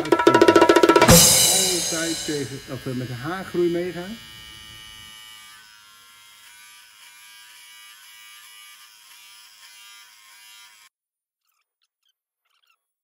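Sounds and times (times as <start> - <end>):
electric beard clipper buzzing: 1.0 - 10.9.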